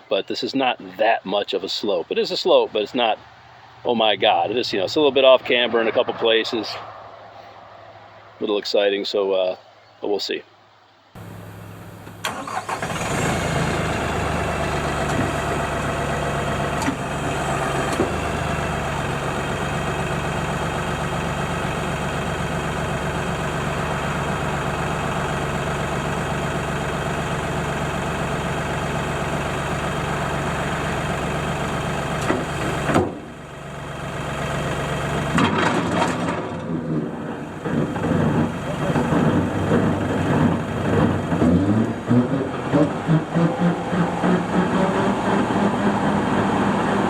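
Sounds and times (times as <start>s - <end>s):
tractor diesel engine running: 11.2s - 47.0s.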